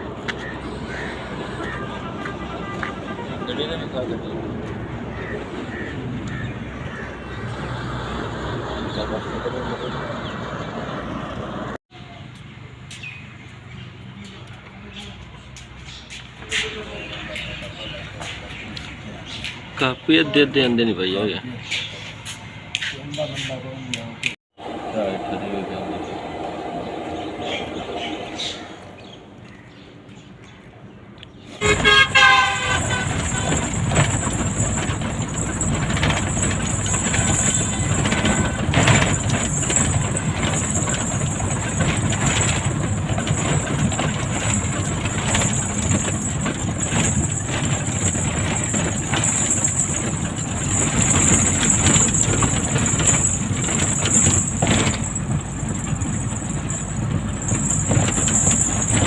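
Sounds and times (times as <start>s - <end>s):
vehicle driving on road: 0.0s - 59.0s
vehicle horn: 0.8s - 4.2s, 31.6s - 34.1s.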